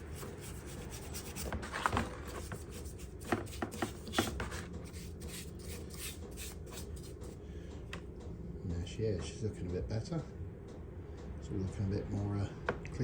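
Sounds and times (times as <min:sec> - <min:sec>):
scrubbing on metal part: 0:00.0 - 0:07.4.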